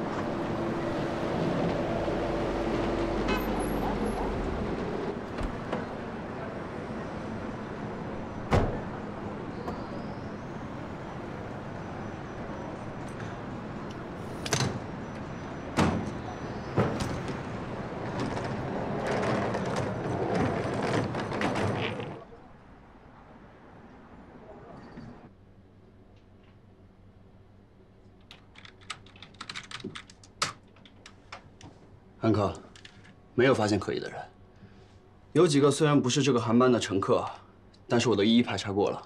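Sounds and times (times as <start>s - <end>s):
vehicle traffic: 0.0s - 25.3s.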